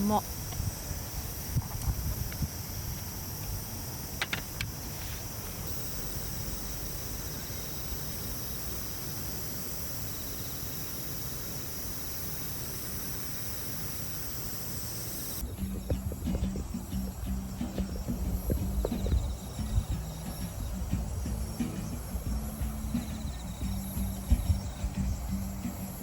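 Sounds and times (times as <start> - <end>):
crickets trilling: 0.0 - 26.0
low background rumble: 15.4 - 26.0.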